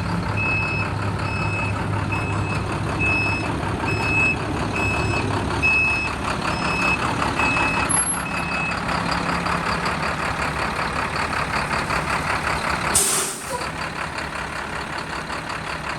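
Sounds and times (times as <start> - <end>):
diesel engine idling: 0.0 - 15.9
truck reversing alarm beeping: 0.0 - 15.9
air brake hiss: 12.9 - 13.7.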